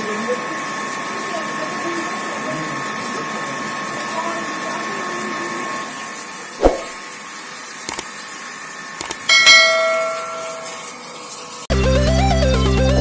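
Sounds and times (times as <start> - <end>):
steady hum: 9.1 - 11.6
metallic clang ringing: 9.3 - 11.1.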